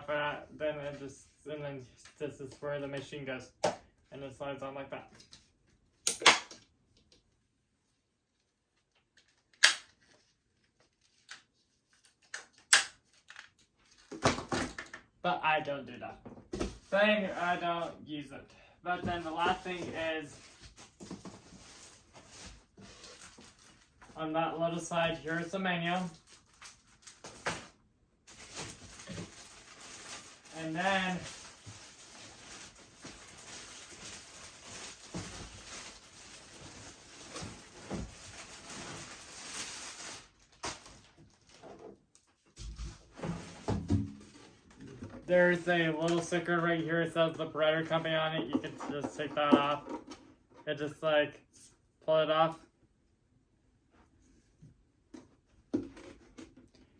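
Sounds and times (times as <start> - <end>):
packaging rustling: 19.0 - 24.2, 25.8 - 42.3
knocking and handling noise: 47.9 - 50.7, 55.1 - 56.8.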